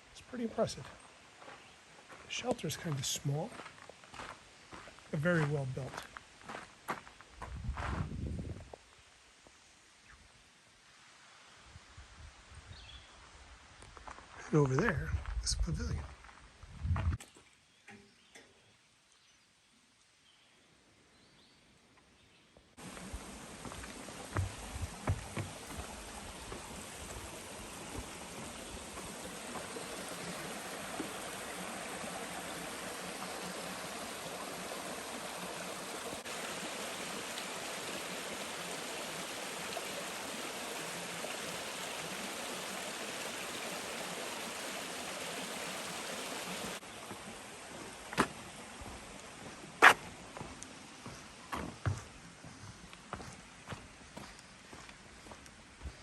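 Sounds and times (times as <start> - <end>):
running water rushing: 0.0 - 7.2, 22.8 - 52.2.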